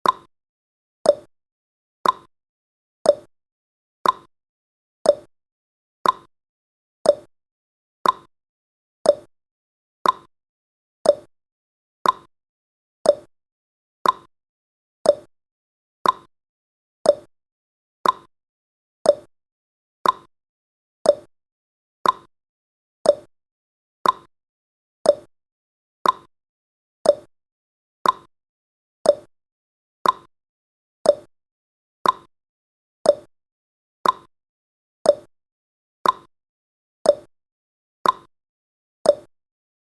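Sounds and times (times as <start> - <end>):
clock ticking: 2.0 - 2.3, 6.0 - 6.3, 8.0 - 8.3, 10.0 - 10.3, 12.0 - 12.3, 14.0 - 14.3, 15.1 - 15.3, 16.0 - 16.3, 18.0 - 18.3, 20.0 - 20.3, 21.1 - 21.3, 22.0 - 22.3, 24.0 - 24.3, 25.1 - 25.3, 26.0 - 26.3, 27.1 - 27.3, 28.0 - 28.3, 29.1 - 29.3, 30.0 - 30.3, 31.1 - 31.3, 32.0 - 32.3, 34.0 - 34.3, 36.0 - 36.3, 38.0 - 38.3.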